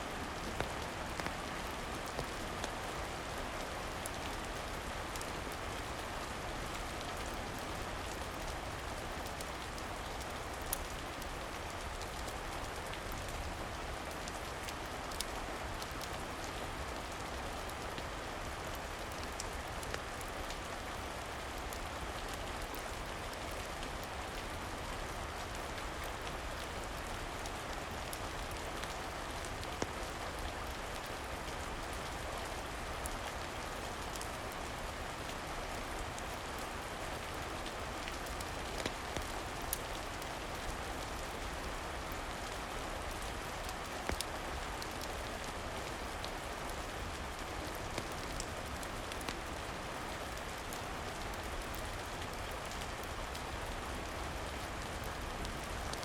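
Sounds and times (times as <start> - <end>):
steady rain falling: 0.0 - 56.0
wood fire crackling: 37.8 - 41.3, 44.0 - 45.2.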